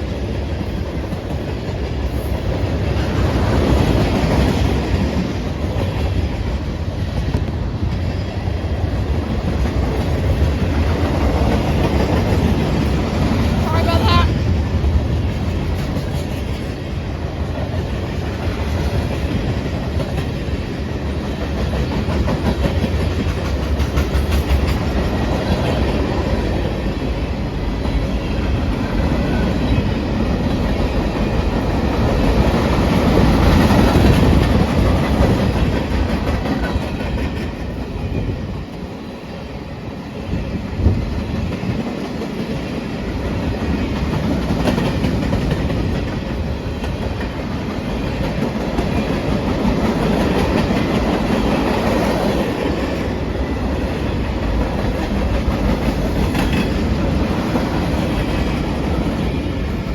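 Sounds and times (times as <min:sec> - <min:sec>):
freight train wheels clicking: 0:00.0 - 0:59.9.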